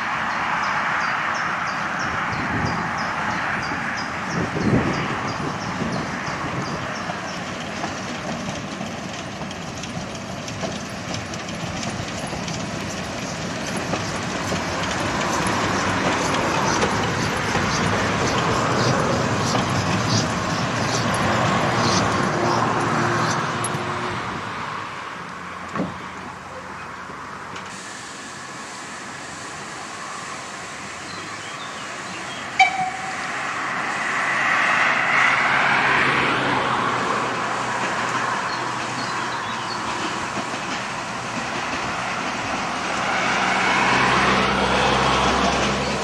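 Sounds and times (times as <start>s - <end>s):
train running along track: 0.0s - 46.0s.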